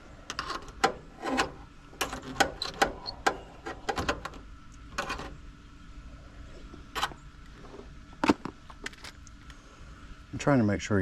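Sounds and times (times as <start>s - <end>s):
metal scraping on metal: 0.0s - 5.4s.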